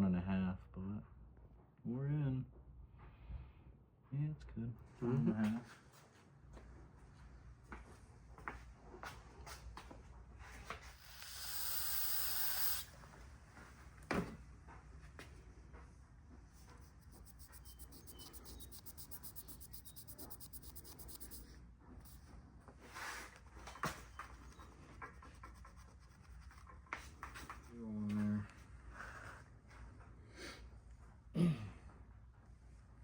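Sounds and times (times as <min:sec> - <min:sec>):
steady hiss: 0:11.0 - 0:12.9
rubbing and scraping on metal: 0:16.6 - 0:22.2, 0:24.1 - 0:27.7.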